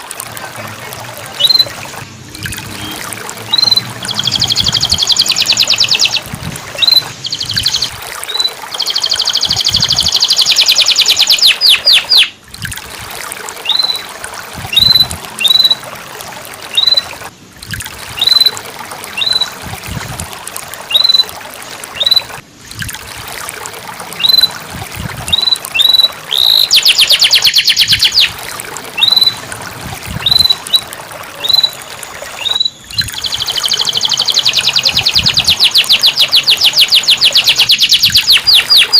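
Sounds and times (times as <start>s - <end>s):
canary singing trills: 1.3s - 12.4s, 13.6s - 14.1s, 14.7s - 15.8s, 18.2s - 19.6s, 20.9s - 21.3s, 21.9s - 22.3s, 24.2s - 24.5s, 25.3s - 28.4s, 29.0s - 29.4s, 30.1s - 38.9s.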